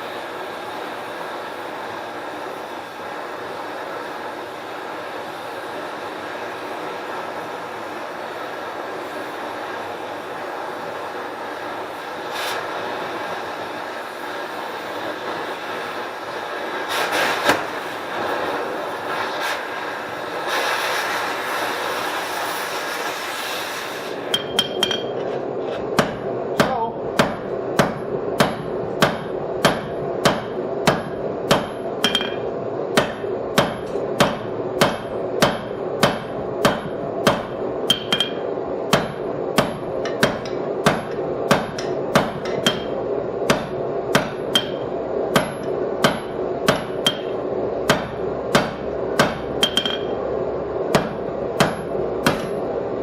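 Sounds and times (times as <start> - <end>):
steady hum: 0.0 - 53.0
hammer striking steel on anvil: 24.3 - 25.3, 26.0 - 50.2, 50.9 - 52.6.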